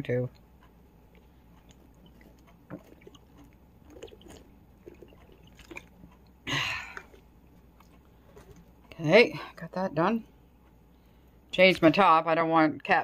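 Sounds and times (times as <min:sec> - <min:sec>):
chewing and mouth sounds: 0:01.0 - 0:09.0.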